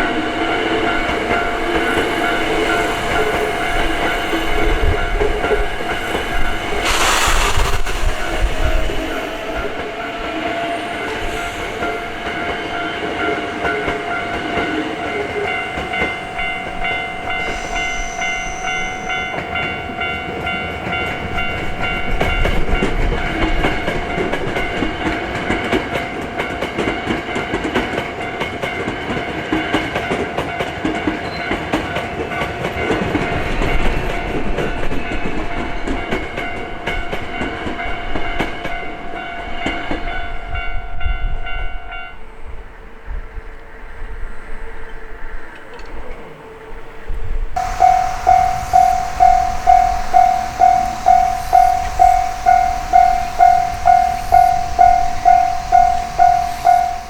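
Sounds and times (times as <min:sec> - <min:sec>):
level-crossing alarm ringing: 0:00.0 - 0:06.9, 0:08.2 - 0:25.7, 0:47.6 - 0:57.0
train rumbling and clattering: 0:00.0 - 0:57.0.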